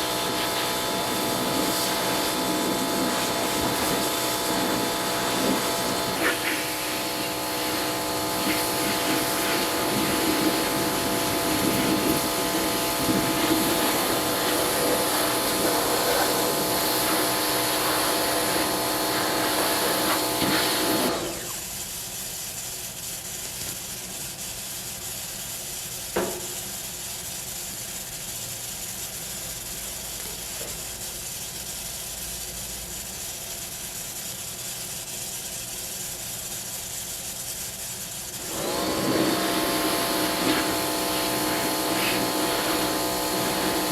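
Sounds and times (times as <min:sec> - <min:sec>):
machine whining and hissing: 0:00.0 - 0:22.6, 0:38.3 - 0:43.9.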